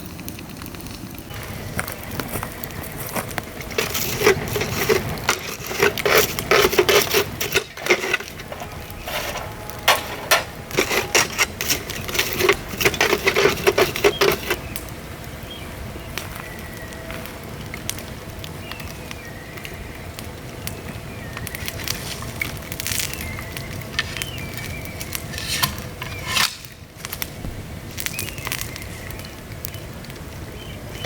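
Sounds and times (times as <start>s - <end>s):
bamboo crackling in fire: 0.0s - 31.0s.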